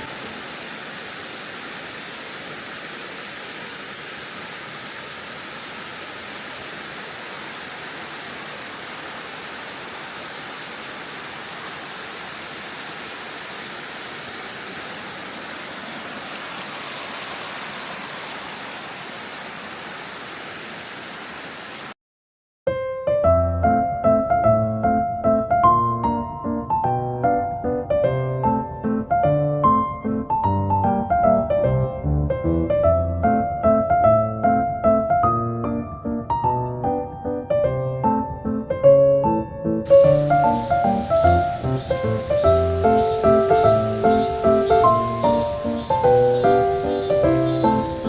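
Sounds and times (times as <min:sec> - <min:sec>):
stream flowing over rocks: 0:00.0 - 0:22.0
piano music: 0:22.7 - 0:48.0.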